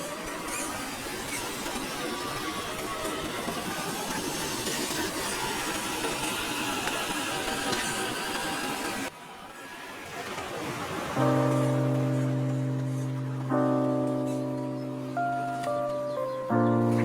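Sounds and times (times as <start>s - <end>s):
hiss: 0.0s - 9.1s.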